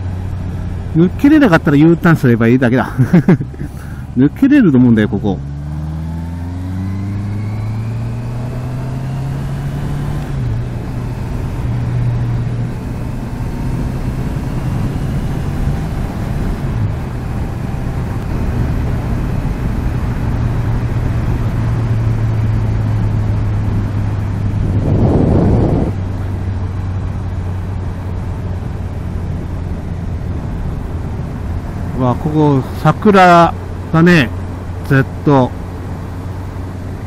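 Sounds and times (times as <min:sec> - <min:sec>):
motorcycle engine accelerating: 0:03.1 - 0:37.0
rush of air noise: 0:24.4 - 0:26.3.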